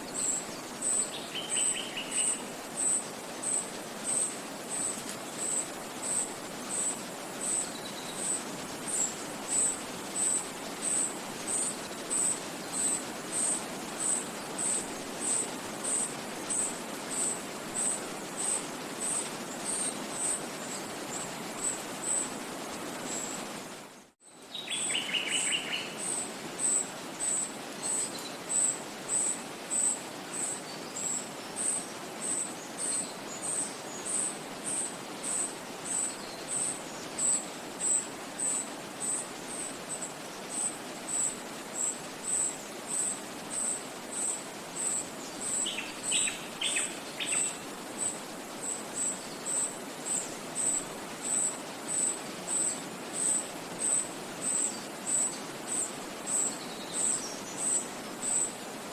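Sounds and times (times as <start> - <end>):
stream flowing: 0.0 - 23.9, 24.5 - 58.9
wind in trees: 0.0 - 58.9.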